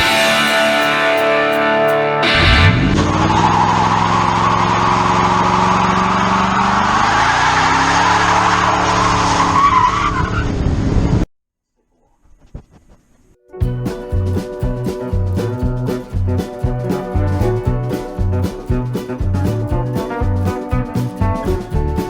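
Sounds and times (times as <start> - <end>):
car engine revving hard: 2.2 - 10.9.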